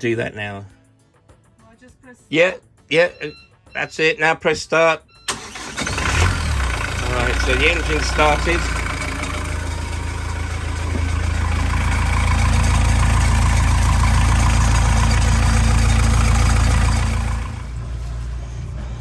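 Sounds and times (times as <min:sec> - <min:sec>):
boat engine idling: 0:05.5 - 0:19.0.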